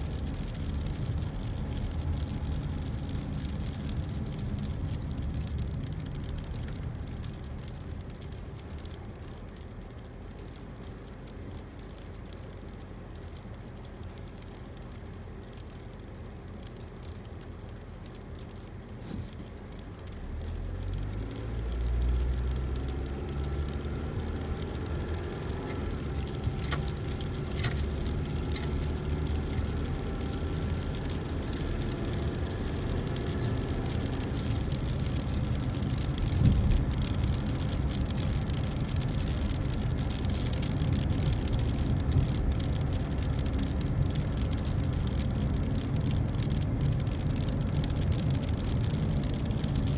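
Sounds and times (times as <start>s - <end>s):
car engine and road noise: 0.0s - 49.9s.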